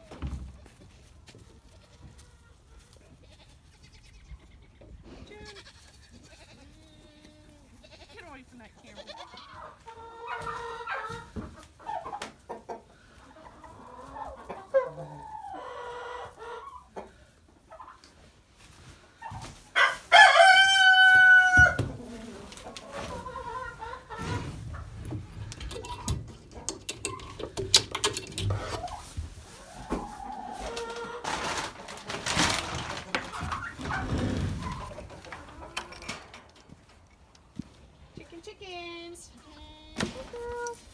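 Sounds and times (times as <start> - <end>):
chickens clucking: 0.0 - 40.9
rooster crowing: 19.8 - 21.9.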